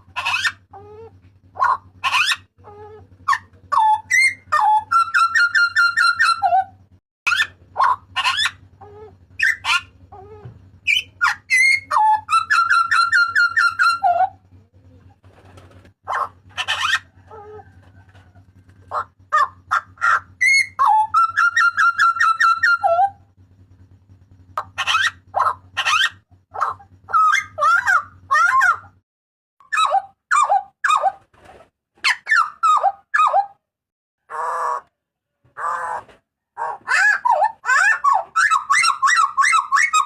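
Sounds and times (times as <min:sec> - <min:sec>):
butcherbird calling: 0:00.0 - 0:29.0, 0:29.6 - 0:31.2, 0:32.0 - 0:33.6, 0:35.6 - 0:40.0
steady low hum: 0:00.0 - 0:29.0.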